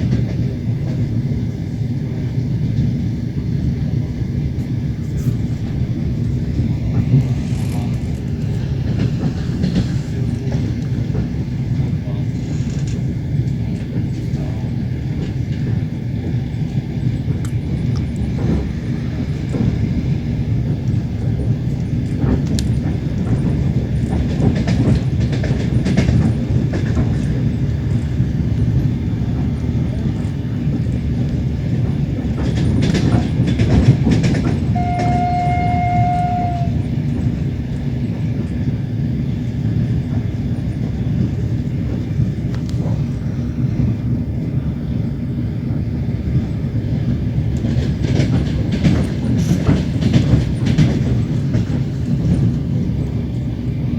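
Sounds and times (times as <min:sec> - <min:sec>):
train rumbling on track: 0:00.0 - 0:53.9
train horn: 0:34.7 - 0:36.9.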